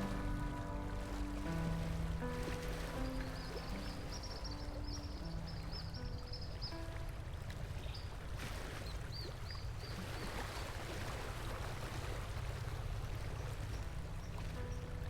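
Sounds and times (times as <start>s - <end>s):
river water rushing: 0.0s - 8.8s.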